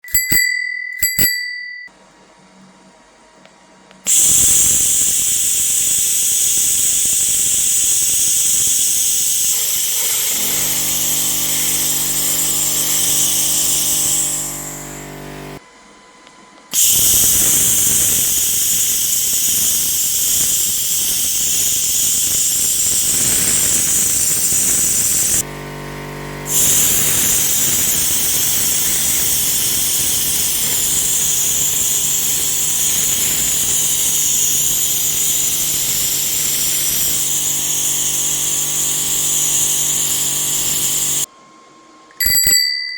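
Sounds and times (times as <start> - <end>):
laser high-pitched hiss: 4.1 - 15.6, 16.8 - 41.3
low machine hum: 10.0 - 15.6, 22.8 - 41.3.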